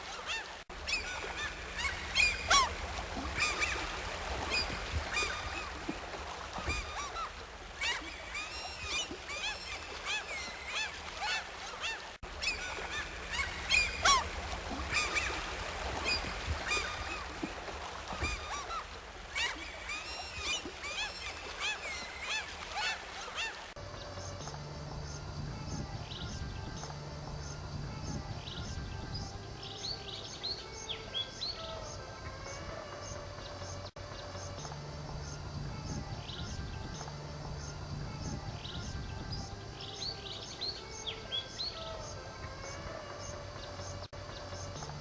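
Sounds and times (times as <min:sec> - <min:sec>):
flock of birds calling: 0:00.0 - 0:23.7.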